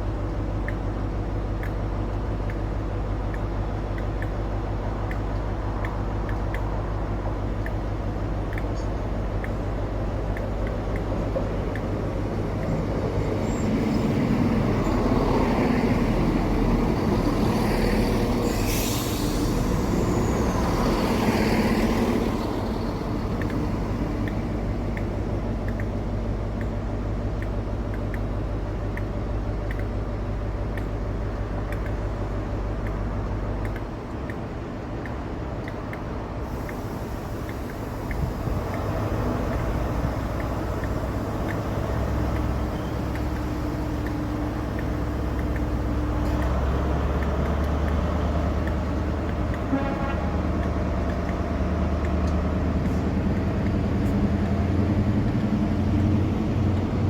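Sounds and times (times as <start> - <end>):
train passing: 9.1 - 27.3, 36.2 - 57.0.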